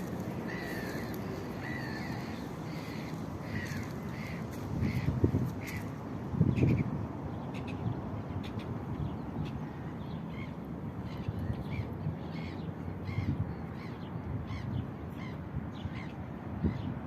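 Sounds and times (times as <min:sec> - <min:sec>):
starling calling: 0:00.0 - 0:06.0.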